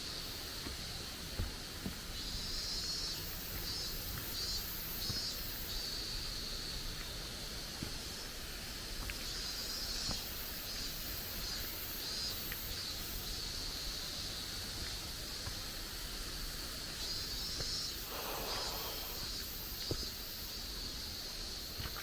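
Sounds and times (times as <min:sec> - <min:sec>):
insects buzzing: 0:00.0 - 0:22.0.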